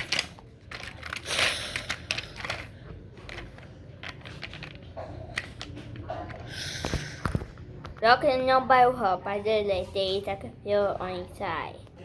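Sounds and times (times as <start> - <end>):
small hard objects clattering: 0.0 - 7.4.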